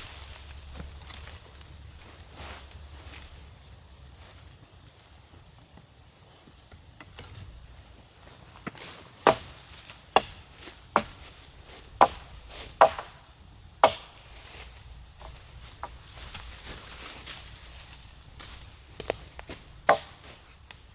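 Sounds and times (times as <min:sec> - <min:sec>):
wood chopping strokes: 0:08.6 - 0:17.6, 0:18.4 - 0:20.9.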